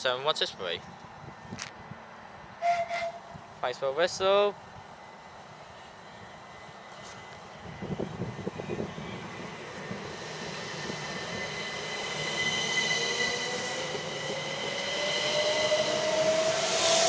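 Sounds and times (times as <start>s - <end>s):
electric train accelerating: 4.8s - 17.0s
train motor whine rising: 6.9s - 17.0s.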